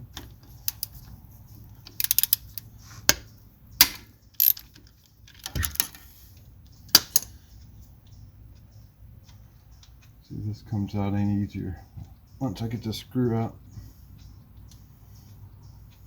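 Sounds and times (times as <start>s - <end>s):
allen key clicking on metal: 0.2s - 1.2s, 1.8s - 3.2s, 3.8s - 6.1s, 6.9s - 7.4s.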